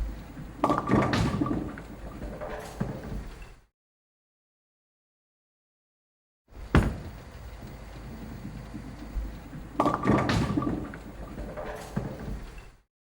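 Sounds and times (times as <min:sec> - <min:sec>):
sharp knock: 0:06.8 - 0:07.2.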